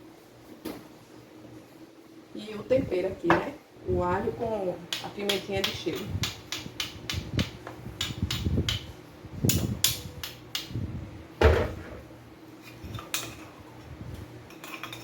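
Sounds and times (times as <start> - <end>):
utensils knocking and clicking: 4.9 - 8.9
heavy thump: 11.4 - 12.0.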